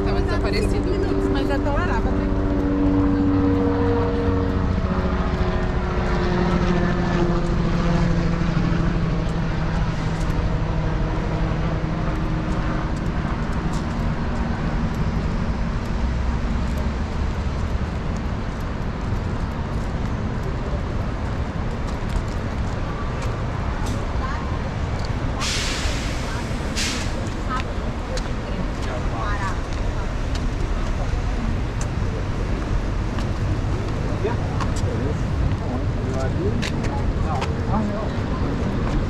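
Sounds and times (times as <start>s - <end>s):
road and wind noise: 0.0s - 39.0s
vehicle engine running: 0.0s - 39.0s.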